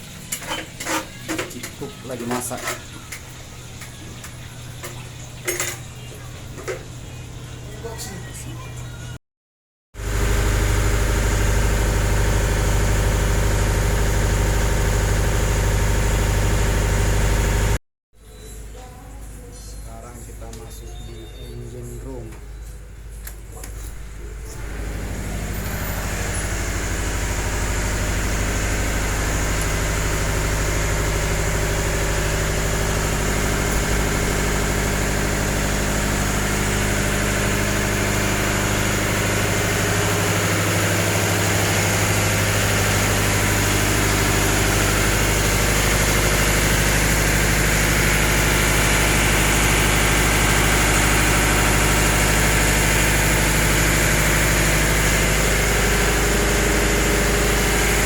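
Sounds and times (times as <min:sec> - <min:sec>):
diesel engines droning: 0:22.9 - 0:58.0.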